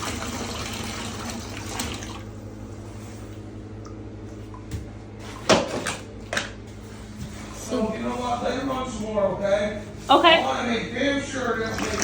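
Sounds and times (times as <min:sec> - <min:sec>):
tap water running into bathtub: 0:00.0 - 0:02.4, 0:11.4 - 0:12.0.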